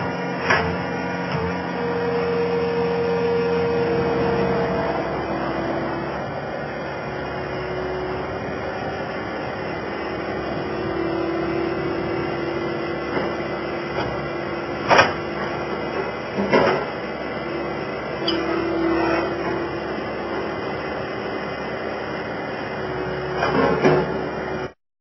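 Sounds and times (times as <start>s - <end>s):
skid steer loader running: 0.0s - 24.8s.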